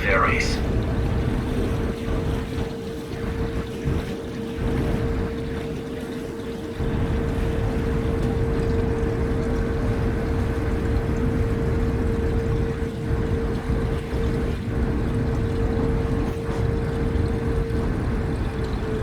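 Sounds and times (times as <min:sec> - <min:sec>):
ferry engines rumbling: 0:00.0 - 0:01.6, 0:06.8 - 0:19.0
mid-pitched hum: 0:00.0 - 0:01.8.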